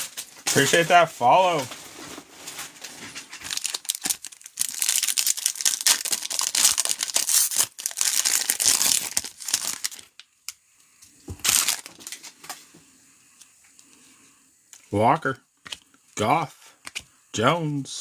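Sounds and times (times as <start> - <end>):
wrapper crinkling and tearing: 0.0 - 10.3, 11.4 - 12.6.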